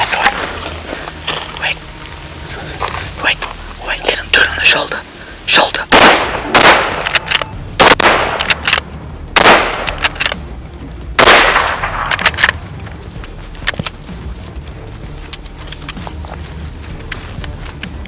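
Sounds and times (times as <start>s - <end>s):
sharp metallic clicks: 0.0s - 10.6s, 11.2s - 14.0s
heavy rifle shots with echo: 5.9s - 8.8s, 9.4s - 10.2s, 11.2s - 12.4s.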